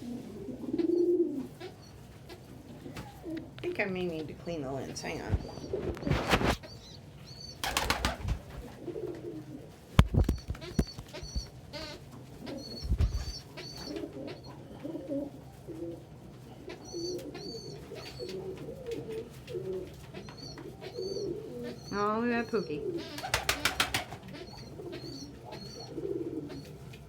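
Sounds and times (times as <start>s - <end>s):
rustling: 0.0s - 6.8s, 7.6s - 20.2s
pigeons cooing: 0.0s - 27.0s.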